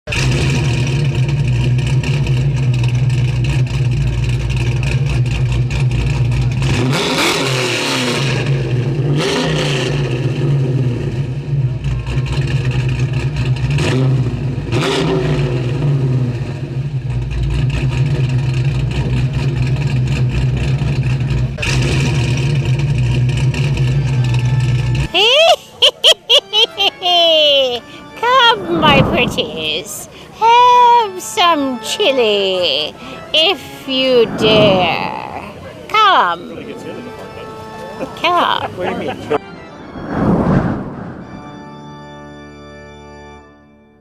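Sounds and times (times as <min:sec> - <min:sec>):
car engine revving: 0:00.1 - 0:25.1.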